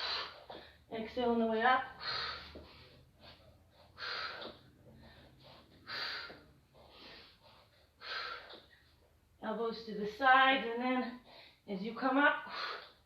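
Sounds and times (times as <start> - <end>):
person breathing hard: 1.9 - 9.0, 11.2 - 11.6.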